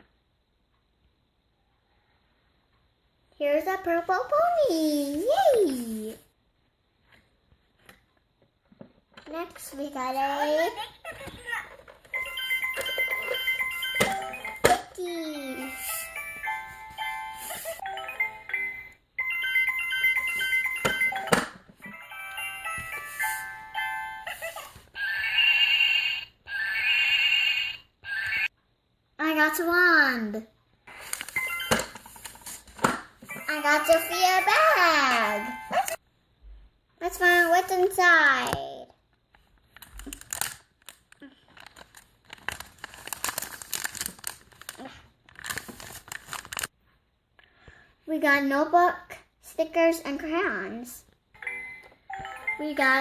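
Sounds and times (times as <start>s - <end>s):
plastic packaging crinkling: 30.9s - 32.8s, 39.7s - 46.7s.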